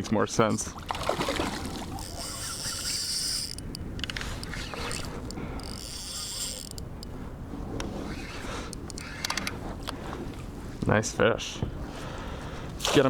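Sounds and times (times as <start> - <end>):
reel clicks: 0.5 - 7.2, 7.8 - 10.0
fishing reel ratcheting and buzzing: 1.7 - 7.1, 8.8 - 9.4.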